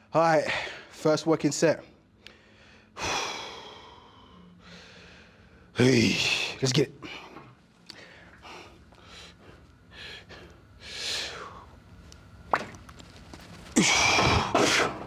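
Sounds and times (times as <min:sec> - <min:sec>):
person breathing hard: 0:02.3 - 0:05.7, 0:07.0 - 0:11.8, 0:13.8 - 0:15.0.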